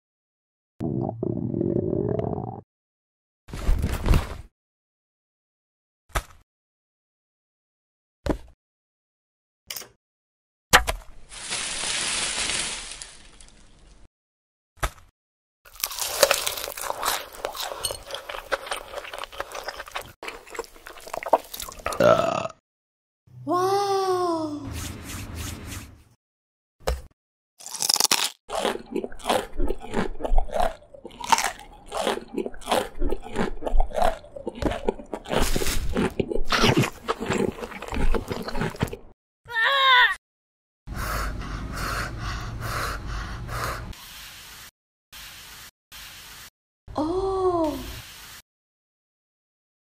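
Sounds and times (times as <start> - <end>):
watermelon cracking open: 15.7 - 21.8, 27.6 - 28.4
crunchy vegetable chewing: 15.7 - 22.1, 27.6 - 39.1.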